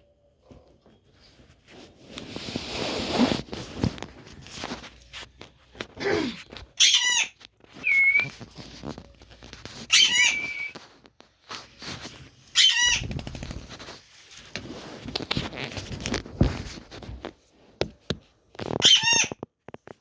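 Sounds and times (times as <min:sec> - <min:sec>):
rustling and scuffling: 0:00.4 - 0:06.8, 0:07.4 - 0:18.8
parrot squawks: 0:06.8 - 0:08.2, 0:09.9 - 0:10.7, 0:12.5 - 0:13.1, 0:18.8 - 0:19.4
parrot whistle: 0:07.8 - 0:08.3, 0:09.9 - 0:10.8.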